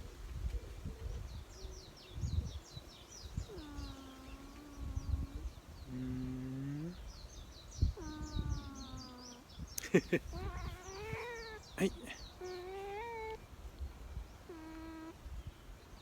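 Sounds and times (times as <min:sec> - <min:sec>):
cat meowing: 0:10.3 - 0:13.4.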